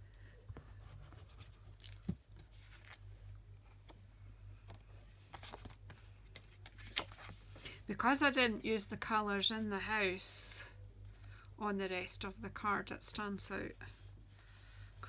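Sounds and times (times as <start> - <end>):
steady low hum: 0.0 - 15.0
card stock rustling: 0.8 - 4.0, 4.6 - 7.7.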